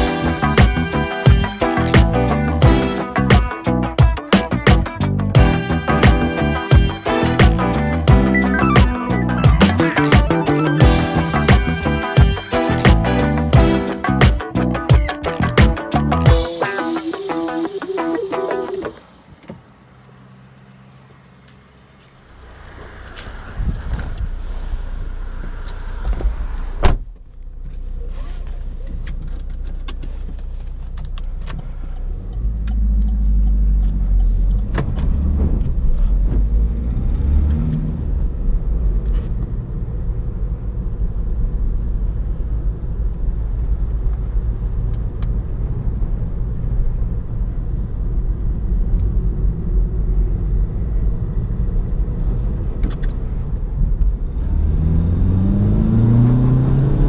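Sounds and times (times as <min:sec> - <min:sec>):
diesel engine running: 0:00.0 - 0:16.5
road rumble: 0:00.0 - 0:16.5, 0:18.7 - 0:57.0.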